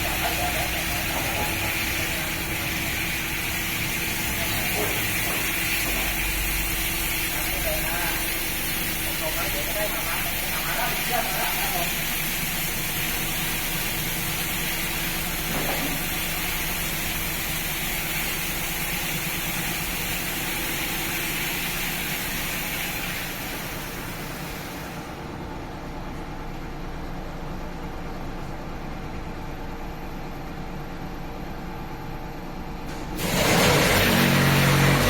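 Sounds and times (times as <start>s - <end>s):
high-pressure water jets hissing: 0.0s - 25.0s
low machine hum: 0.0s - 35.0s.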